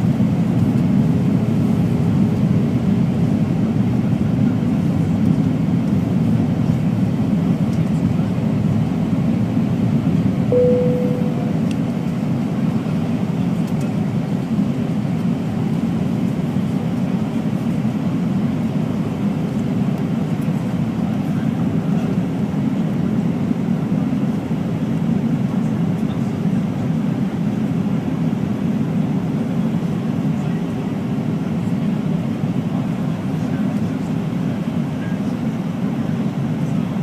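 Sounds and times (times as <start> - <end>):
brief cabin tone: 10.5 - 11.7.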